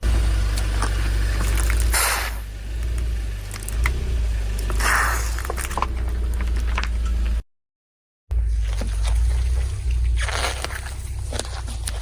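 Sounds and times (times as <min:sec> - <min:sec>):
car engine rumbling: 0:00.0 - 0:07.4, 0:08.3 - 0:12.0
tyre crushing objects: 0:08.6 - 0:12.0.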